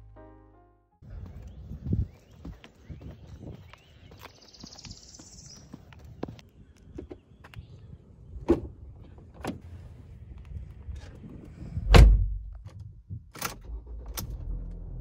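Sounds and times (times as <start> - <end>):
footsteps on asphalt: 1.0 - 8.0
car door shutting with thud: 11.9 - 12.4.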